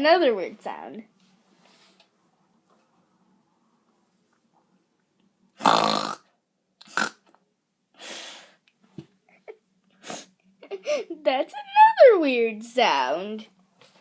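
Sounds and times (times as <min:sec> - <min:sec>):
person making harsh throat noise: 0:05.6 - 0:07.3.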